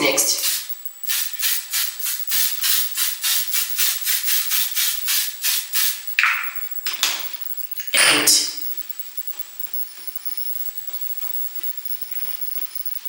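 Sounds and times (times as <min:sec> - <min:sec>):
spray bottle hissing: 0:00.2 - 0:07.3.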